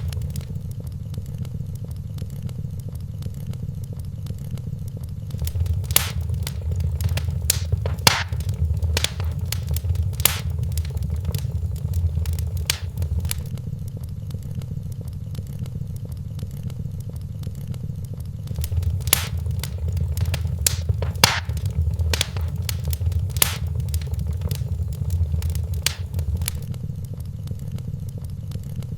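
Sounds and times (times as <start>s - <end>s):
sharp pops of fire: 0.0s - 0.6s, 5.3s - 13.5s, 18.5s - 26.7s
wood fire crackling: 0.0s - 0.6s, 5.3s - 13.5s, 18.5s - 26.7s.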